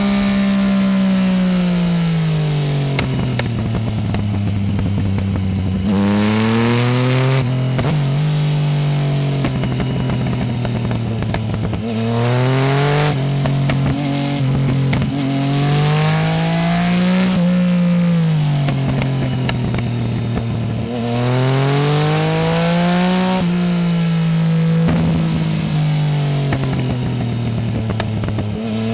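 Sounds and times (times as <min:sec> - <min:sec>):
motorcycle engine accelerating: 0:00.0 - 0:28.9.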